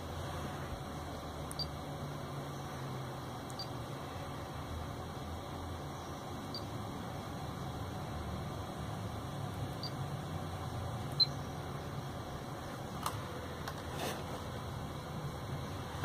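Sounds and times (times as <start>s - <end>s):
faint hiss and low hum: 0.0s - 16.0s.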